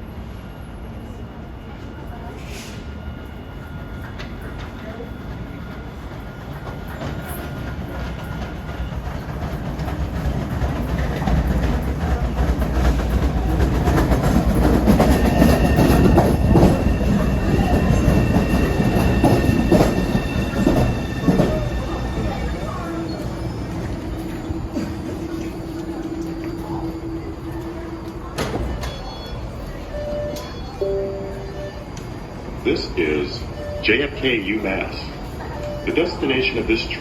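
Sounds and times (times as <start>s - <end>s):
subway train arriving: 0.0s - 37.0s
steady high tones: 14.8s - 35.1s.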